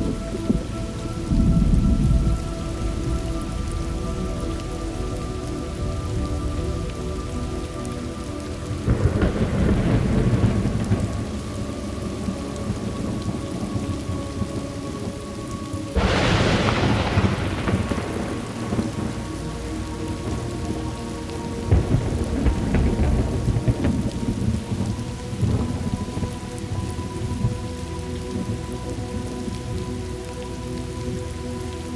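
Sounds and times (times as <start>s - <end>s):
thunder rumbling: 0.0s - 31.3s
steady rain: 0.0s - 31.9s
sharp thunderclap: 8.9s - 11.3s, 16.0s - 19.4s, 21.7s - 25.9s.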